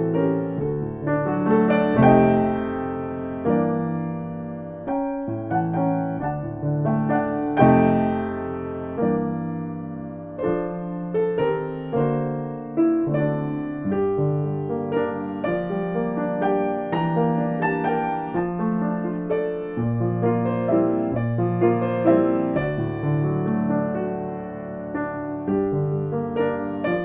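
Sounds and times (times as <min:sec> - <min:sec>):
solo piano music: 0:00.0 - 0:27.0.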